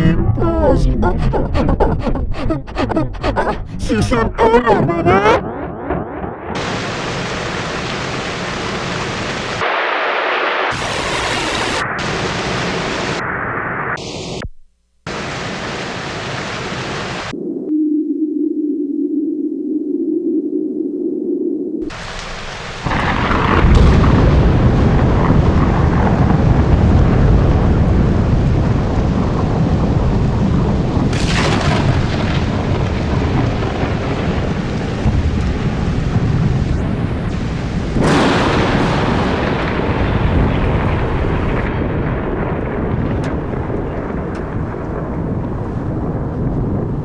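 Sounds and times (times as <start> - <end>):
ambient electronic noise music: 17.2 - 22.2.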